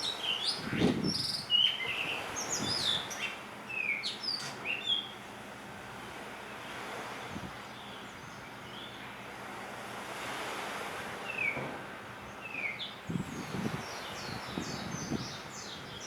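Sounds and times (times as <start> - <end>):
wind: 0.0 - 16.0
wind buffeting microphone: 0.6 - 1.4, 13.0 - 16.0.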